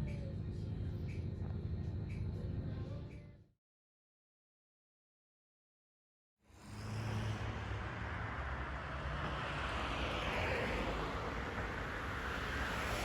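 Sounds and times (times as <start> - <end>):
low background rumble: 0.0 - 3.4.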